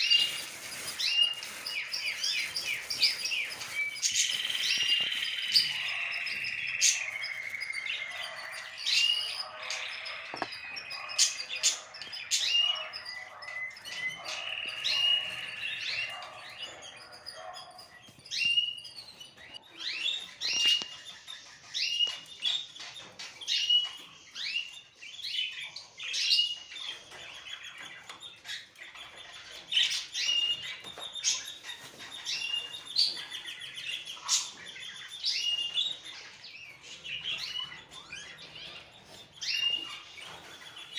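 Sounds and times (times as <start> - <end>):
birds chirping and warbling: 0.0 - 40.9.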